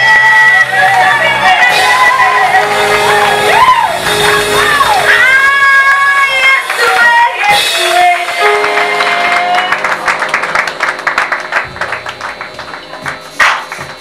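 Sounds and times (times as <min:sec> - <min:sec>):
singers holding a note: 0:00.0 - 0:09.7
congregation clapping: 0:02.5 - 0:05.1, 0:08.2 - 0:14.0.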